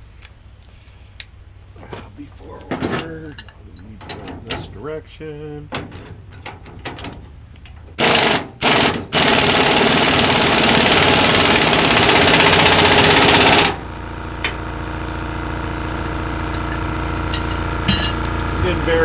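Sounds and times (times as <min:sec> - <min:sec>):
impact wrench hammering: 0:07.8 - 0:13.8, 0:16.5 - 0:18.4.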